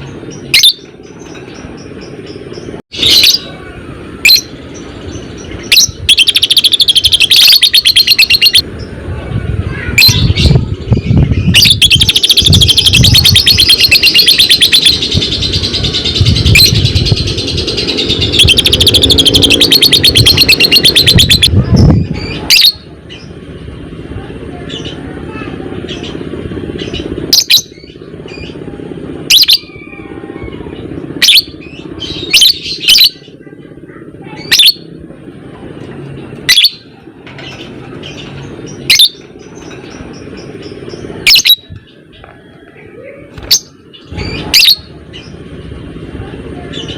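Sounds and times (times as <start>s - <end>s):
bird chattering trill: 0.3s - 3.6s, 4.2s - 9.0s, 9.8s - 23.3s, 24.7s - 28.6s, 29.2s - 34.9s, 36.4s - 42.2s, 43.4s - 45.4s.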